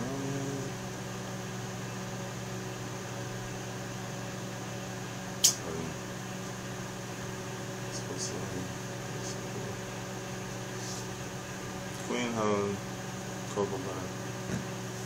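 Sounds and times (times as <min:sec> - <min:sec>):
low hum with faint hiss: 0:00.0 - 0:15.0
sharp click: 0:05.4 - 0:05.6.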